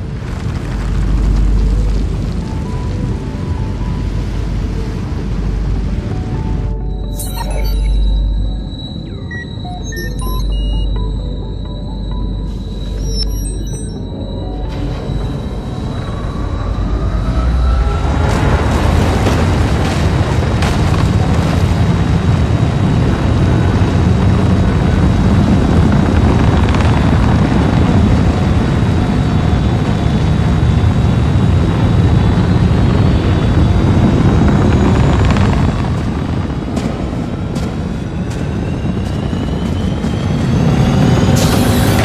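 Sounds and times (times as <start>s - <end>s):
deep rumble: 0.0s - 42.0s
rising sweeps: 1.7s - 19.2s.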